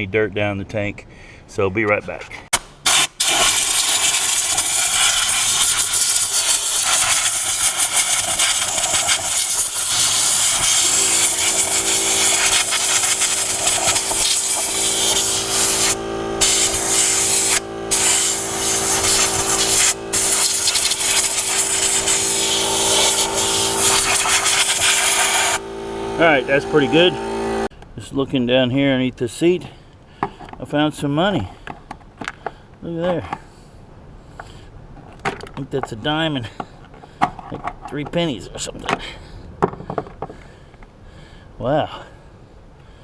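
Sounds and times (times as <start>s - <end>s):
air blowing hard: 8.2s - 27.7s
motor hum: 9.4s - 27.7s.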